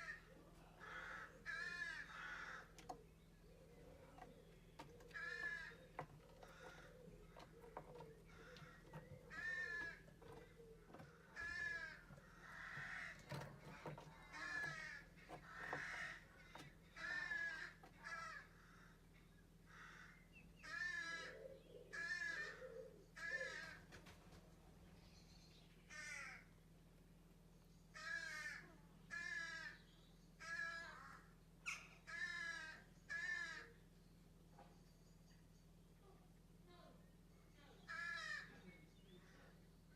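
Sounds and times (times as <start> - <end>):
barn owl calling: 0.0 - 19.1, 19.7 - 23.8, 27.9 - 33.8
barn owl harsh calls: 19.7 - 23.8, 27.9 - 33.8.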